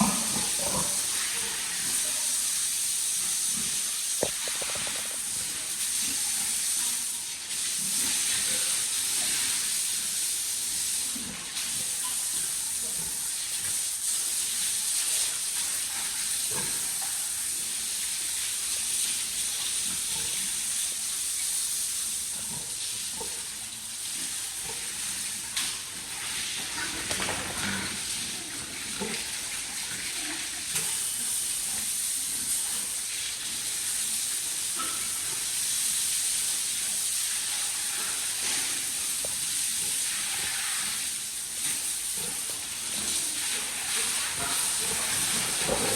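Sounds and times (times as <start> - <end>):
water spray hissing: 0.0 - 45.9.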